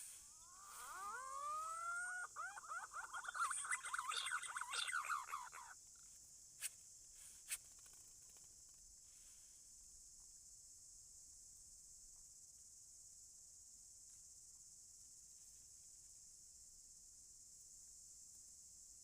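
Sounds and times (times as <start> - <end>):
faint high hiss: 0.0 - 5.6
pigeons warbling whistles: 0.0 - 5.7.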